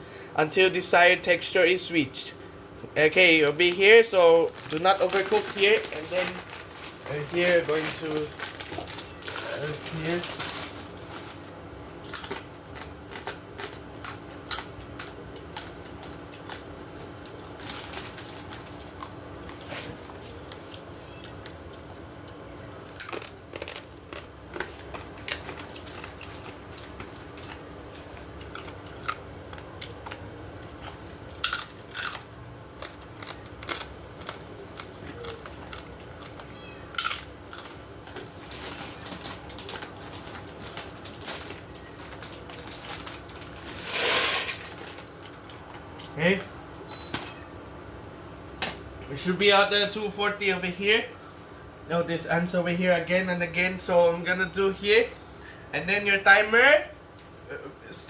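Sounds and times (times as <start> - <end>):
steady hum: 0.0 - 58.0
crinkling: 3.6 - 16.6, 17.2 - 32.2, 32.8 - 45.6.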